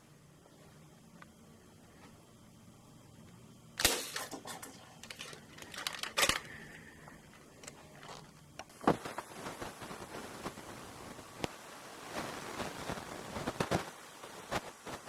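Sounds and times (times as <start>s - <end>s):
plastic toy blasters clacking: 5.0s - 6.5s.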